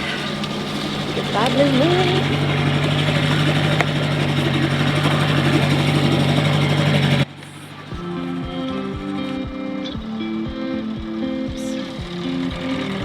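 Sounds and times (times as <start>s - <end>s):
music with plucked bass: 0.0s - 7.2s, 7.9s - 13.0s
rushing water wash: 0.0s - 9.0s
outboard motor running: 0.0s - 13.0s.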